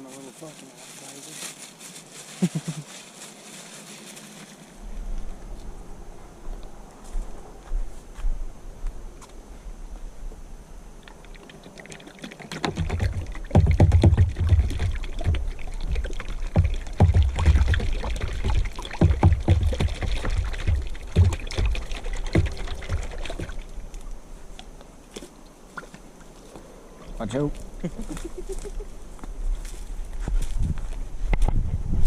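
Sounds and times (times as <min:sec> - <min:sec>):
bait pouring: 0:11.1 - 0:24.0
knocks and low thumps: 0:12.6 - 0:23.7.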